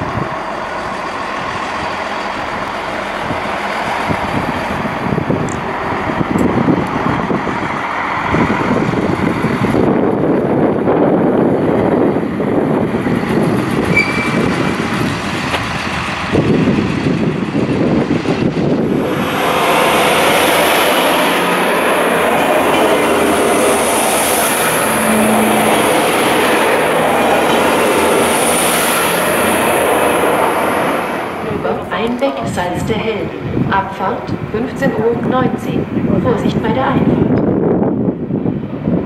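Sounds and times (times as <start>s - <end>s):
diesel railcar rolling past: 0.0s - 39.0s
wind on the microphone: 2.5s - 22.4s, 29.4s - 39.0s.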